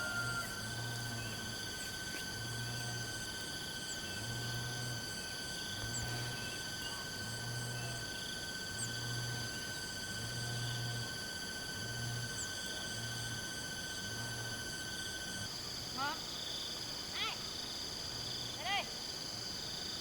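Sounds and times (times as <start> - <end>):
pulsing low hum: 0.0 - 15.5
insects droning: 0.0 - 20.0.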